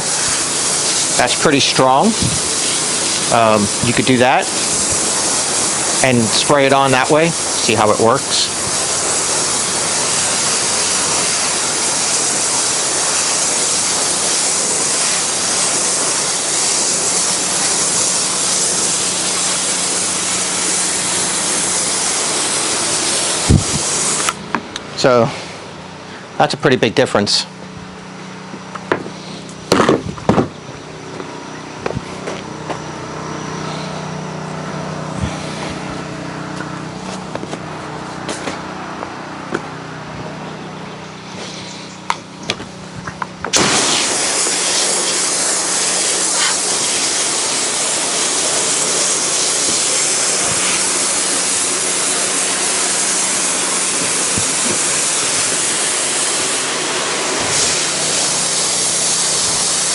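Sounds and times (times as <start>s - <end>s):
water spray hissing: 0.0s - 24.4s, 41.2s - 59.9s
pressure washer engine running: 0.0s - 59.9s.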